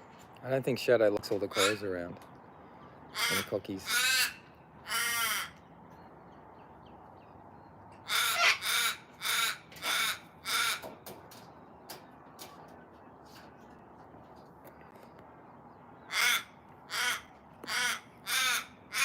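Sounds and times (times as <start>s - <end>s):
raven cawing: 1.5s - 2.0s, 2.6s - 5.7s, 8.0s - 11.2s, 16.0s - 19.0s.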